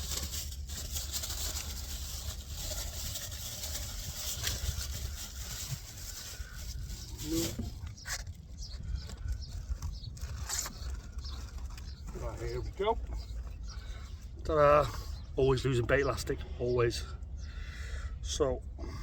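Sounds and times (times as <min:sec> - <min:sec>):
fishing tackle rustling and clattering: 0:00.0 - 0:14.3.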